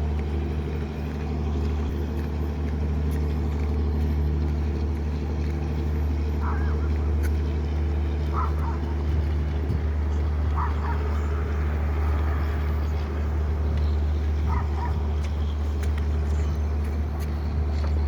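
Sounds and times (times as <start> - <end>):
boat engine humming: 0.0 - 18.0
dog barking: 6.4 - 6.8, 8.3 - 8.9, 10.6 - 11.2, 14.5 - 15.0.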